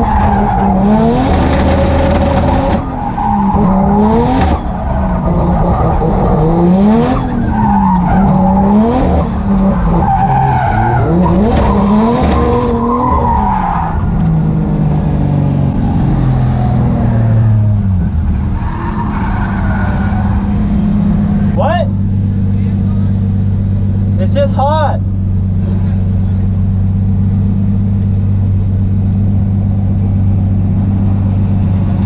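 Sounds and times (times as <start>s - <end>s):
tires squealing: 0.0s - 14.8s, 15.6s - 23.5s
car engine revving: 0.0s - 32.0s.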